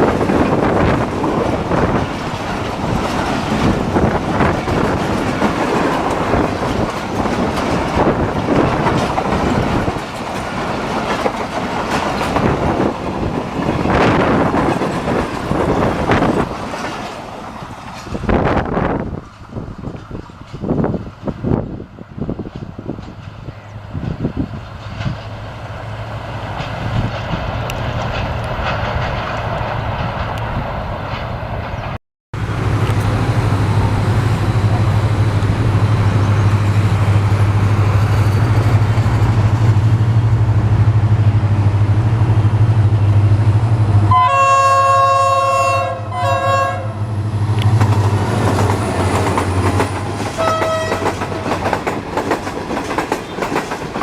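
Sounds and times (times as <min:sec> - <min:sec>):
train wheels clicking on rails: 0:00.0 - 0:44.2, 0:47.0 - 0:54.0
locomotive engine drone: 0:22.8 - 0:51.4
locomotive air horn blasts: 0:44.1 - 0:47.0, 0:50.4 - 0:51.1.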